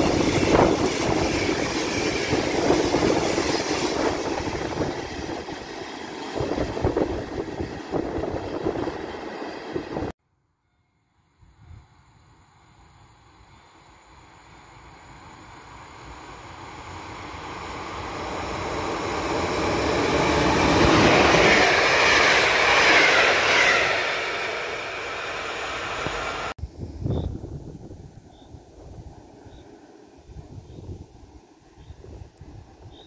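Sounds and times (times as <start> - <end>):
wind buffeting the microphone: 0.0 - 5.7, 6.3 - 9.1, 26.0 - 29.4, 30.2 - 33.0
passenger train passing: 0.0 - 10.1, 12.4 - 33.0.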